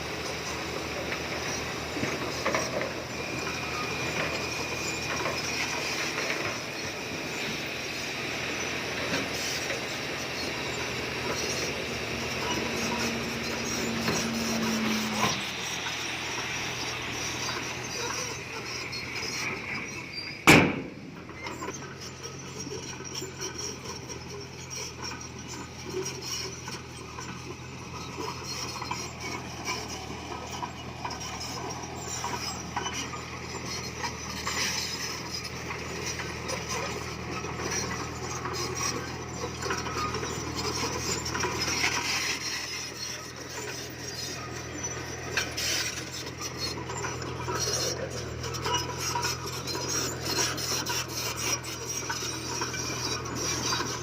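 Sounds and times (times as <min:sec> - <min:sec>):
bulldozer diesel engine running: 0:00.0 - 0:54.0
stone grinding and scraping: 0:11.2 - 0:19.4, 0:33.8 - 0:54.0.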